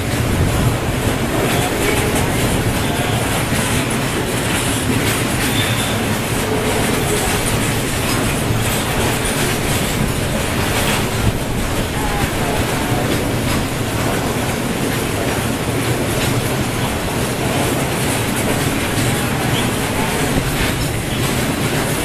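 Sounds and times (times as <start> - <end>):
train rumble: 0.0 - 22.0
wheels clattering over rail joints: 0.0 - 22.0
faint wheel squeals: 5.4 - 7.4.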